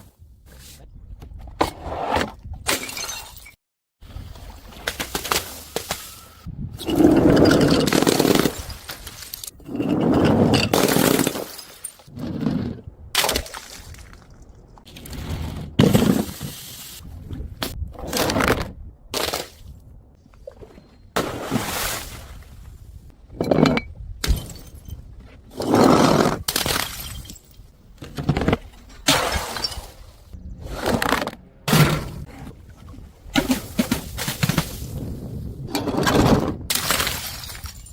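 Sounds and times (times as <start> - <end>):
glass bottles smashing: 9.6 - 12.1, 26.5 - 27.6, 36.7 - 37.9.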